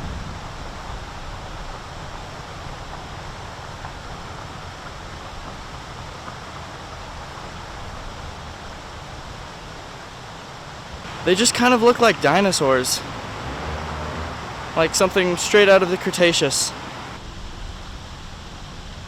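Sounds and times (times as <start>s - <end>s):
wind on microphone: 0.0s - 9.9s.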